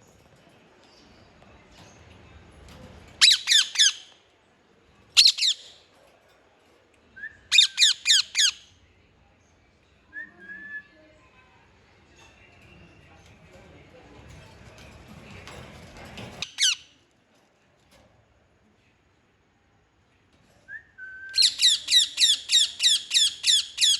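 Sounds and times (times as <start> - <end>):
parrot squawking: 3.2 - 4.0.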